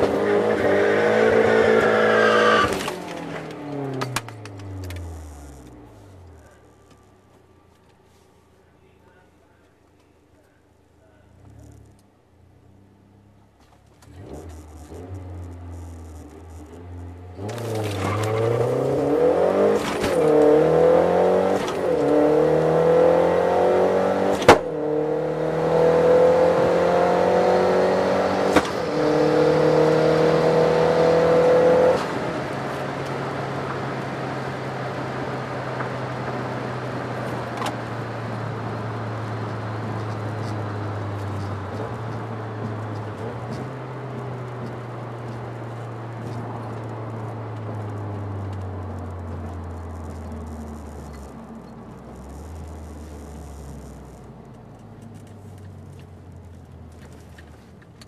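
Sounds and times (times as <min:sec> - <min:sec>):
car engine accelerating: 0:00.0 - 0:08.2, 0:11.0 - 0:58.0
gear shift click: 0:02.5 - 0:07.2, 0:35.2 - 0:58.0.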